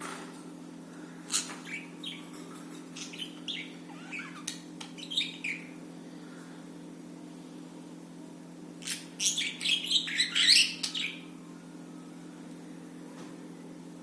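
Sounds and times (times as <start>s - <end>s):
steady low hum: 0.0s - 14.0s
budgerigars chirping: 3.0s - 5.8s, 8.9s - 11.2s.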